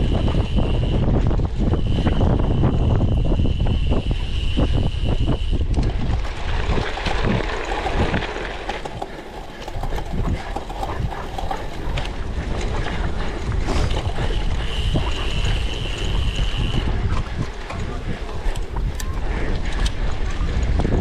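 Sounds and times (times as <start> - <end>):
steady high whine: 0.0 - 5.8
bike rattling over bumps: 0.0 - 21.0
wind buffeting microphone: 0.0 - 21.0.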